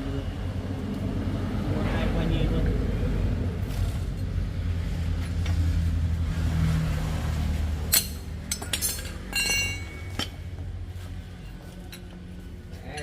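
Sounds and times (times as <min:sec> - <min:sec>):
vehicle engine humming: 0:00.0 - 0:13.0
sharp metallic clinks: 0:07.9 - 0:10.4.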